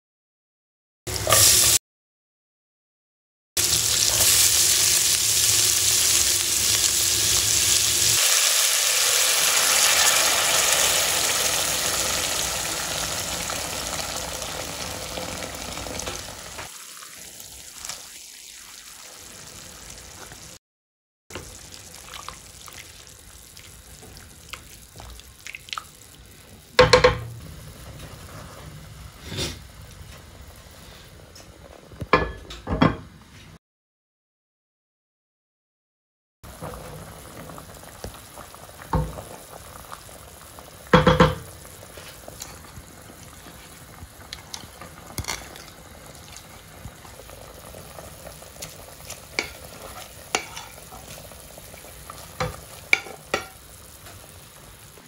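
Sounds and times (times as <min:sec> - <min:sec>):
water poured into a pan: 0:03.6 - 0:20.1, 0:21.3 - 0:26.4, 0:36.5 - 0:55.0.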